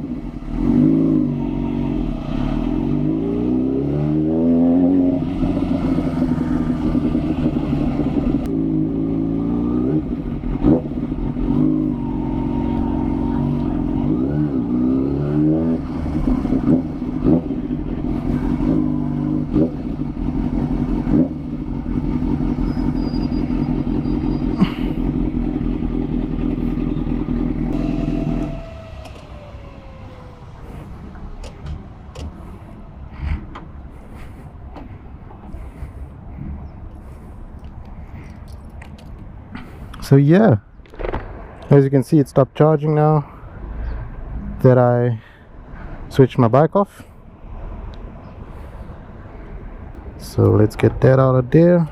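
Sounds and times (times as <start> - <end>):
motorcycle engine running: 15.8 - 32.0
whine winding down: 27.7 - 32.6.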